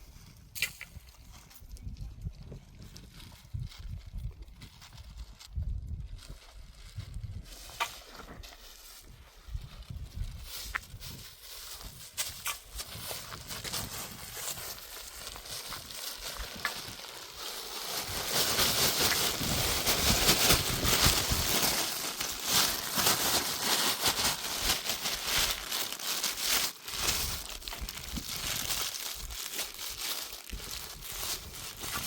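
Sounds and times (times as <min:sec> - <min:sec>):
dense rustling and crackling: 0:07.4 - 0:32.0.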